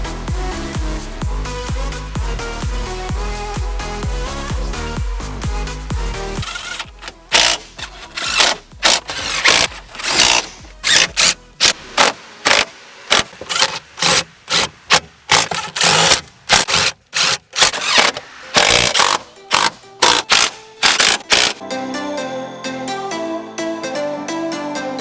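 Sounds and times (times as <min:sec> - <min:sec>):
power tool bursts: 0:06.4 - 0:21.6.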